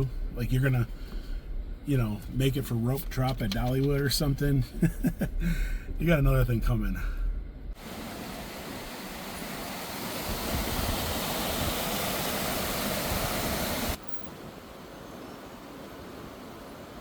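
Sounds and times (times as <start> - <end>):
stream rushing over rocks: 7.8 - 17.0.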